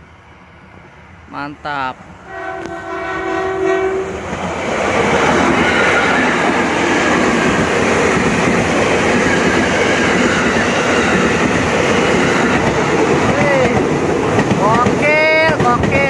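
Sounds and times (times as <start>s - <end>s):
train horn blast: 2.3s - 4.2s
train wheels on rails: 2.4s - 16.0s.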